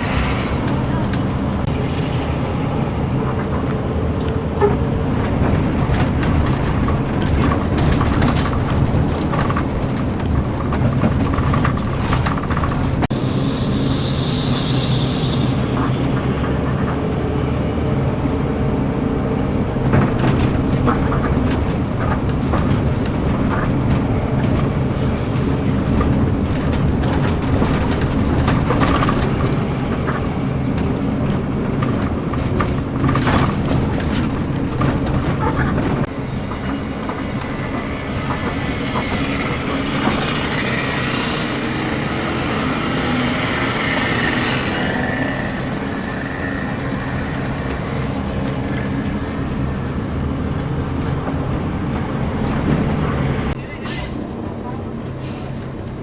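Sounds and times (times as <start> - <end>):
bus engine running: 0.0 - 56.0
road noise: 0.0 - 56.0
rattles: 3.3 - 13.1, 19.3 - 54.0.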